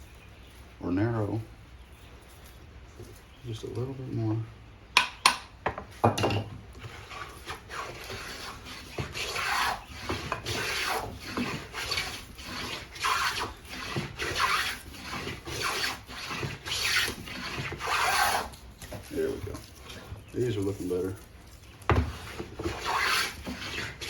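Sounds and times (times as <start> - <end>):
hand plane shaving wood: 6.8 - 21.2, 21.9 - 24.0.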